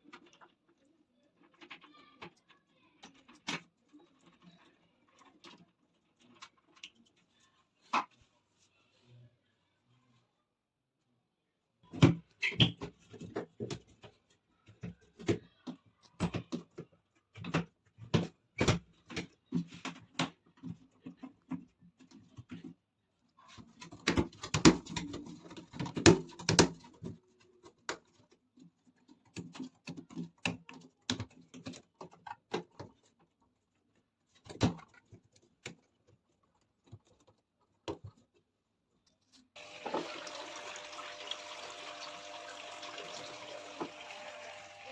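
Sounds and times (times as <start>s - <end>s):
water rushing into machine: 39.6s - 44.9s.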